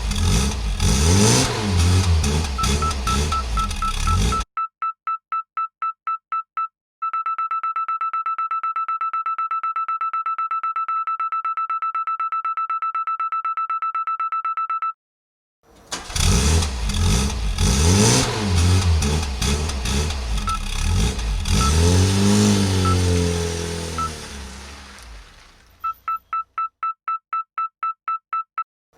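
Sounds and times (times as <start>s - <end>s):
toy truck reverse beeper: 2.4s - 15.0s, 20.4s - 20.9s, 21.5s - 23.3s, 24.0s - 24.2s, 25.8s - 28.7s.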